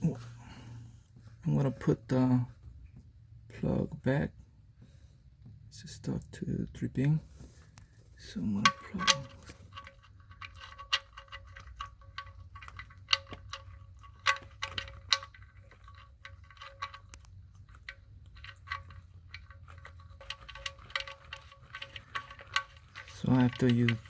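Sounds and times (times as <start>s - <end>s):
small metallic clicks: 7.0s - 24.0s.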